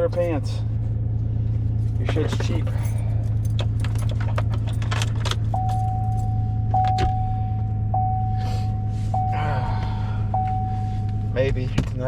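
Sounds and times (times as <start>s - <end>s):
truck engine idling: 0.0s - 11.8s
single-tone warning chime: 5.6s - 9.6s, 10.2s - 11.4s.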